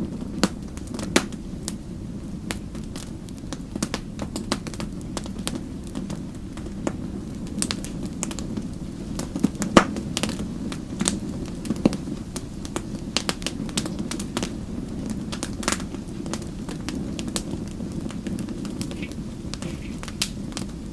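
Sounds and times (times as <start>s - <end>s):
wood fire crackling and popping: 0.0s - 20.9s.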